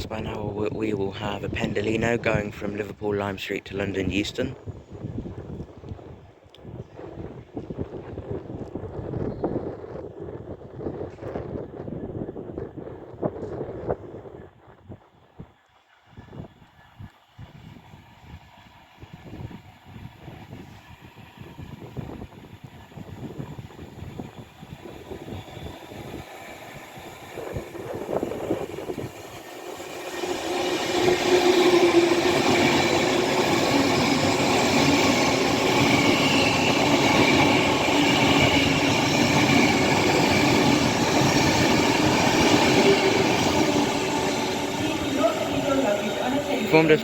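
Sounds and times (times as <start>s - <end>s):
electric train passing at speed: 17.2s - 47.0s.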